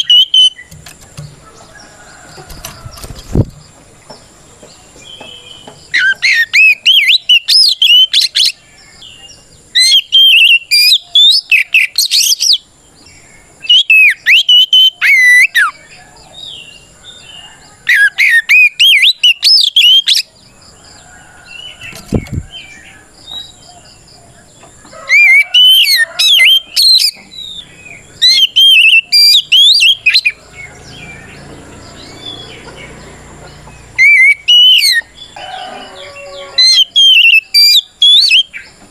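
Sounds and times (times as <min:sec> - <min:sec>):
bird singing rapid whistles: 0:00.0 - 0:00.8, 0:05.5 - 0:08.6, 0:09.8 - 0:12.6, 0:13.6 - 0:15.8, 0:17.9 - 0:20.3, 0:25.1 - 0:30.4, 0:33.9 - 0:35.4, 0:36.6 - 0:38.7.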